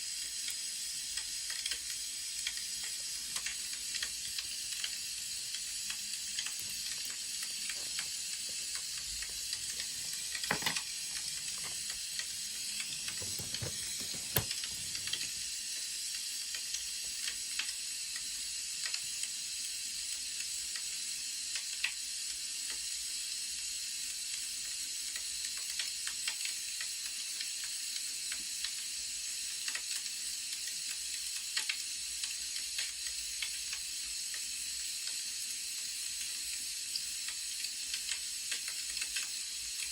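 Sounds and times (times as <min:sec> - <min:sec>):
wood fire crackling: 0:05.3 - 0:15.6.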